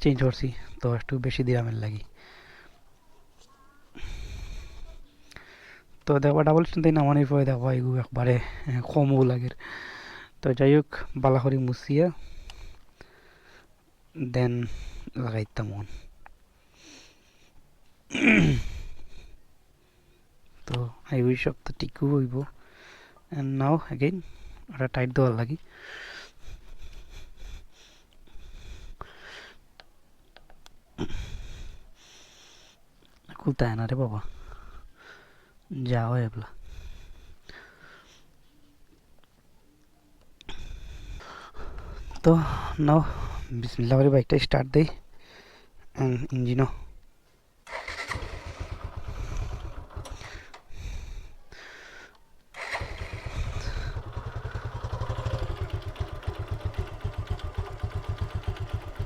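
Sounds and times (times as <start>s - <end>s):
heavy breathing: 2.1s - 2.8s, 3.9s - 5.9s, 9.6s - 10.4s, 12.1s - 13.8s, 14.6s - 15.2s, 18.4s - 20.3s, 22.6s - 23.3s, 24.1s - 24.7s, 25.6s - 29.6s, 31.0s - 32.9s, 34.2s - 35.6s, 36.5s - 38.4s, 40.5s - 43.6s, 47.7s - 59.0s
motorcycle engine starting and idling: 47.6s - 51.3s, 52.5s - 59.0s.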